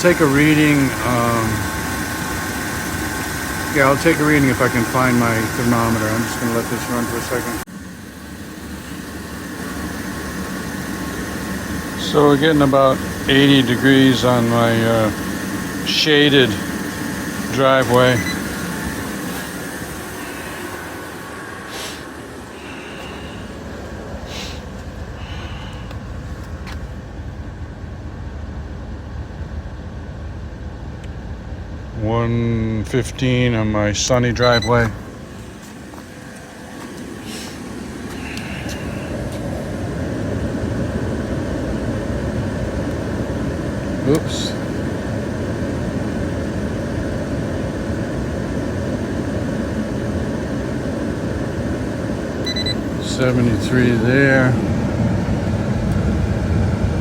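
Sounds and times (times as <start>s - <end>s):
air conditioning running: 0.0s - 57.0s
truck engine idling: 0.0s - 57.0s
short hisses: 19.2s - 26.0s, 37.2s - 39.2s.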